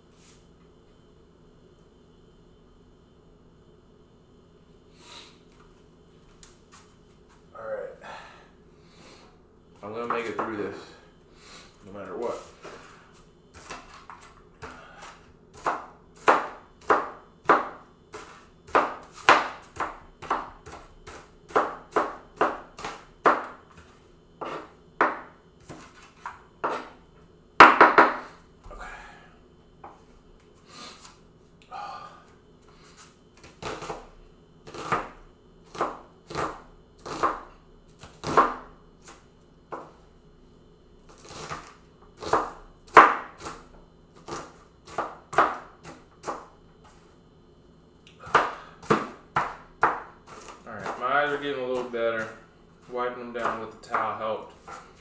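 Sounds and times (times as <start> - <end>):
knife chopping on cutting board: 13.5 - 27.0, 33.4 - 40.0, 41.1 - 47.0, 48.2 - 52.4, 53.3 - 55.0.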